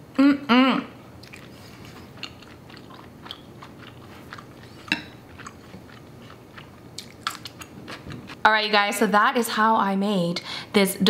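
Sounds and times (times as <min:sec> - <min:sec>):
wet chewing mouth clicks: 0:01.2 - 0:08.4.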